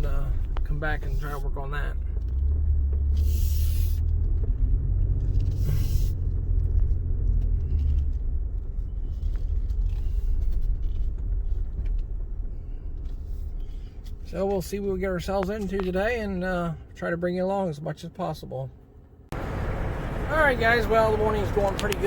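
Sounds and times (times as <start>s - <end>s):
engine rumbling: 0.0s - 22.0s
short hisses: 3.2s - 4.0s, 5.5s - 6.2s.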